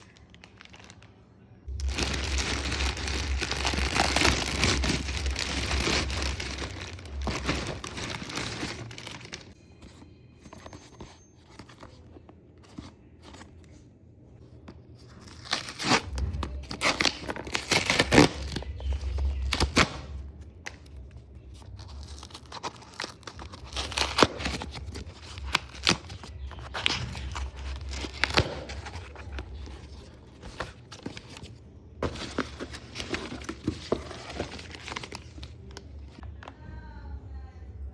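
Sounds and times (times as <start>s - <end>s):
plastic wrap and paper tearing: 0.0s - 1.1s, 1.7s - 9.6s, 15.1s - 36.2s.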